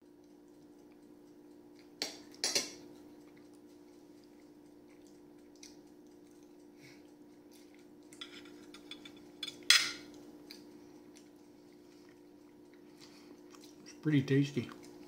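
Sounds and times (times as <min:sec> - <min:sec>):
mouth clicks of chewing: 0:00.1 - 0:08.2, 0:10.1 - 0:14.0
cutlery clinking on a dish: 0:02.0 - 0:02.8, 0:08.2 - 0:10.1.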